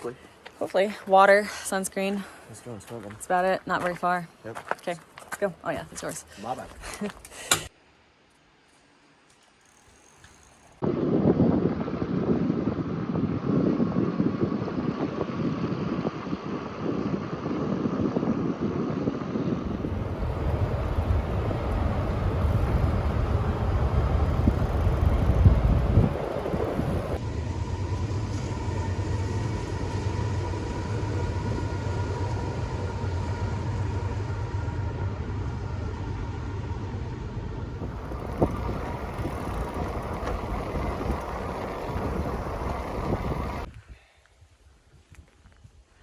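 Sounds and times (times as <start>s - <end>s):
wind rushing over microphone: 10.8s - 27.2s, 37.6s - 44.0s
low rumble: 19.6s - 43.7s.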